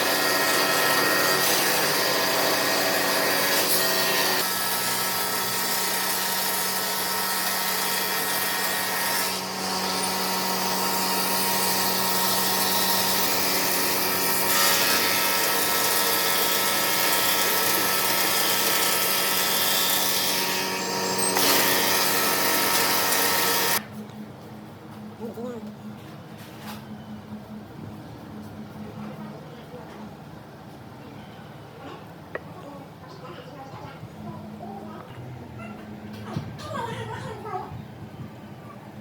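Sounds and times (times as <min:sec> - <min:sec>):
lathe motor hum: 0:00.0 - 0:23.8
tool hissing on spinning wood: 0:09.5 - 0:23.8.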